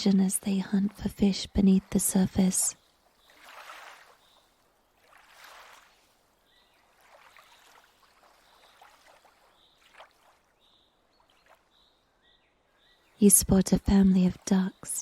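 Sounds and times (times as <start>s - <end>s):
water lapping: 0.0s - 12.0s.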